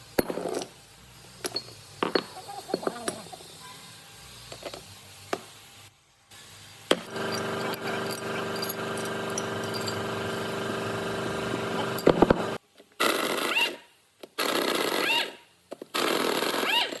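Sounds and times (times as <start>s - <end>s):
machine running: 7.0s - 12.6s.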